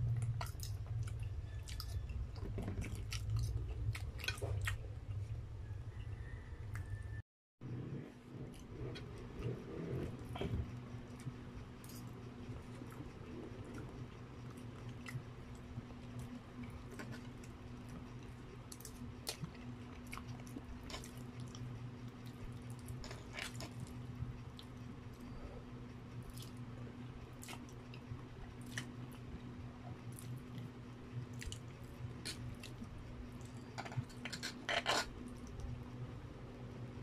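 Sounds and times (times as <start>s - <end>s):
low steady hum: 0.0s - 37.0s
chewing spaghetti: 0.1s - 5.3s, 8.5s - 25.4s, 26.1s - 35.7s.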